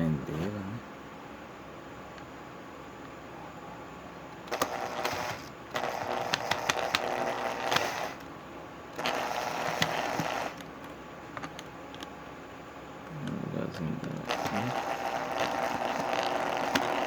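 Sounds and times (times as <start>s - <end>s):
power screwdriver driving screws: 4.5s - 8.2s, 9.0s - 10.6s, 14.3s - 17.0s.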